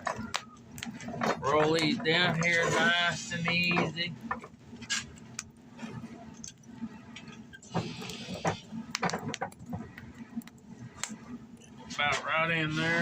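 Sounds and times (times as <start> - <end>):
metal posts clinking and scraping: 1.0 - 4.1.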